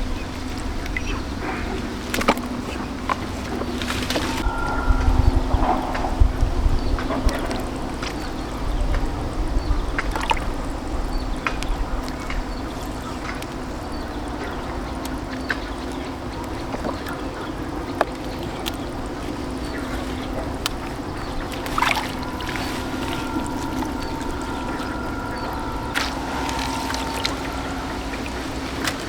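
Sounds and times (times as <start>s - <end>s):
small boat engine running: 0.0s - 29.0s
water splashing: 0.0s - 29.0s
high steady tone: 4.4s - 7.8s, 21.5s - 29.0s.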